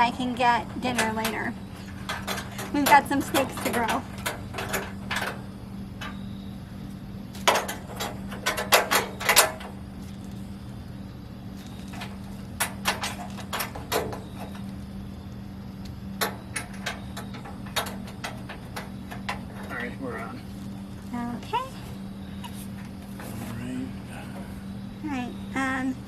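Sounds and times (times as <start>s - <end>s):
metal knocks and clanks: 0.0s - 5.4s, 7.4s - 9.7s, 16.2s - 19.8s
steady low hum: 0.0s - 26.0s.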